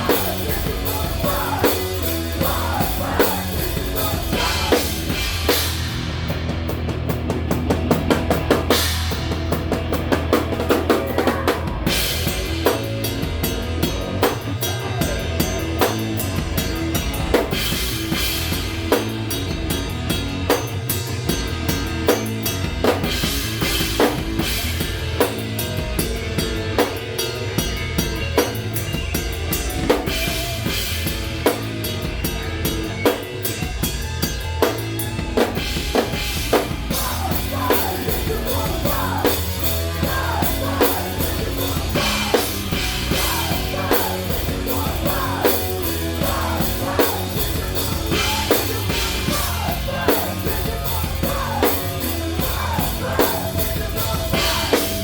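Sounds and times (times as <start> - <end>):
drum kit beat: 0.0 - 55.0
electric guitar bending notes: 0.0 - 55.0
rock band playing: 0.0 - 55.0.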